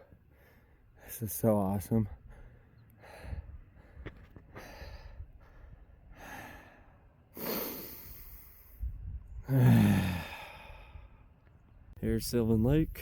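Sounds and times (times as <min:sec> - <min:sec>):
person breathing hard: 0:00.1 - 0:01.1, 0:02.2 - 0:08.8, 0:09.4 - 0:11.3
voiced sigh: 0:09.4 - 0:11.2.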